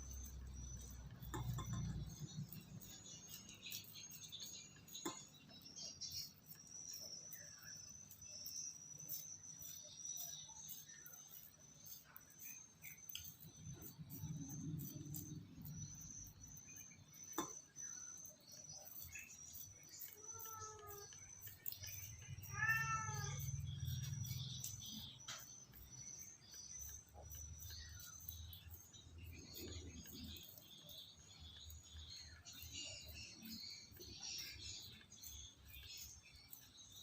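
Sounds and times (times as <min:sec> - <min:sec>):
crickets chirping: 0:00.0 - 0:37.0
cat meowing: 0:20.2 - 0:21.0, 0:22.4 - 0:23.6.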